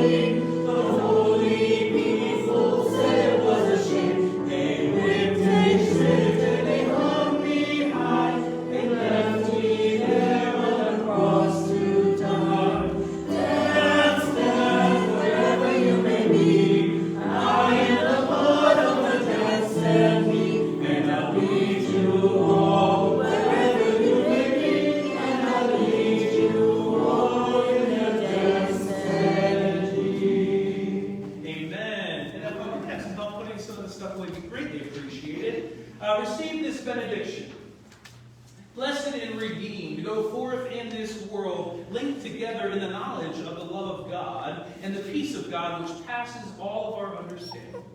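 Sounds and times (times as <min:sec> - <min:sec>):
congregation singing a hymn: 0:00.0 - 0:33.7.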